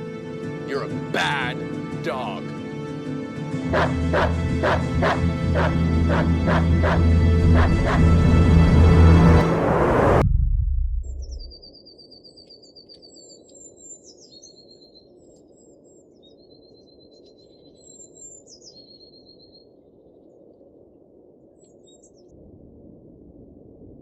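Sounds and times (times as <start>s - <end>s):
steady low hum: 3.8s - 11.6s
birds singing whistled notes: 11.3s - 20.4s, 21.6s - 22.3s.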